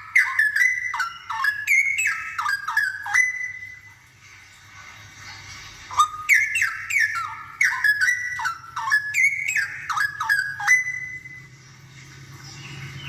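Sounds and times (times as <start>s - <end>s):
bird singing whistled notes: 0.0s - 4.0s, 5.9s - 11.6s.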